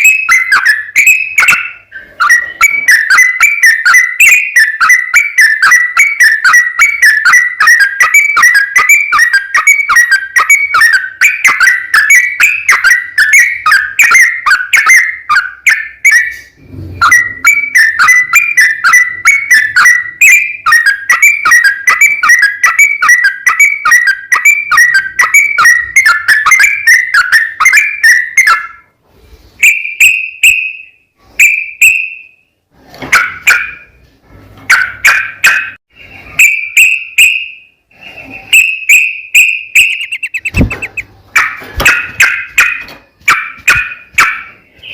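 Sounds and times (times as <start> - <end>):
bird singing chirpy notes: 0.0 - 28.7, 38.5 - 41.1.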